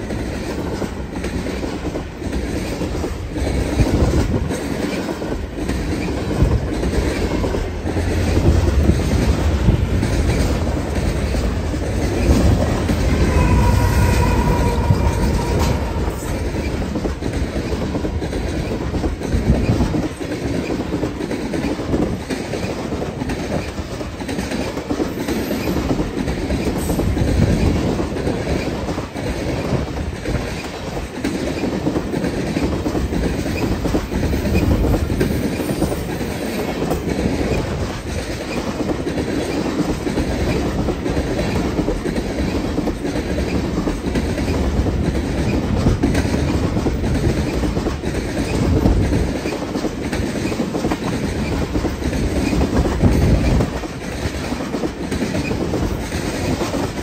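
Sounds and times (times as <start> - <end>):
train wheels clicking over rail joints: 0.0 - 57.0.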